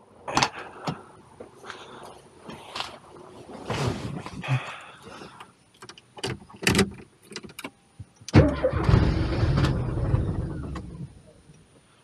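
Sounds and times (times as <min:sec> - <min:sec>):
car engine cranking and stalling: 0:08.3 - 0:11.3.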